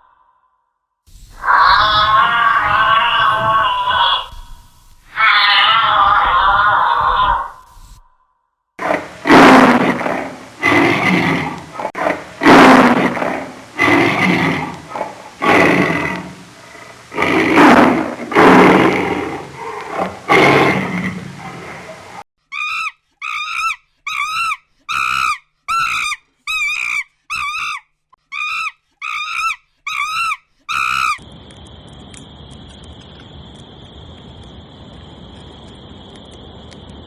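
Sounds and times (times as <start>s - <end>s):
light hiss: 1.1s - 5.6s, 7.5s - 8.1s, 8.8s - 22.2s
wild animal rough calls: 8.8s - 22.2s.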